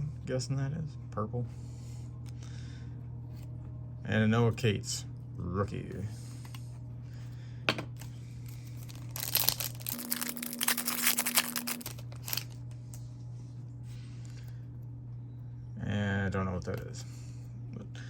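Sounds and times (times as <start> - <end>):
wrapper crinkling and tearing: 8.7 - 12.6.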